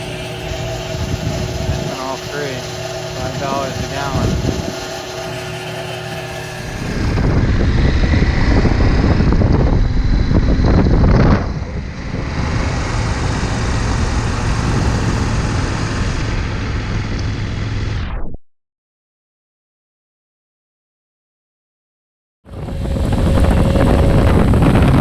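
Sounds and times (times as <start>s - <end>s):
motorcycle engine running: 0.0s - 17.9s
wind noise: 0.0s - 18.2s, 22.5s - 25.0s.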